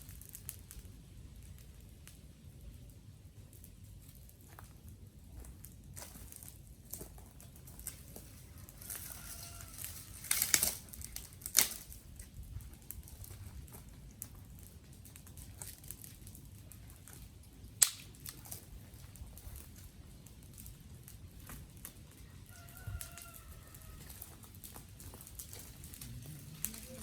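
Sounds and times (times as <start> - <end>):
dry twigs snapping: 6.0 - 14.6, 17.8 - 18.7, 22.6 - 27.0.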